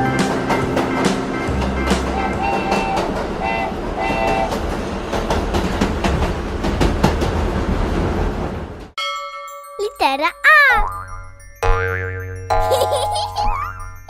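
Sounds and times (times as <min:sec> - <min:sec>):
train wheels clacking: 0:00.0 - 0:08.9
train whistle toots: 0:02.0 - 0:04.6.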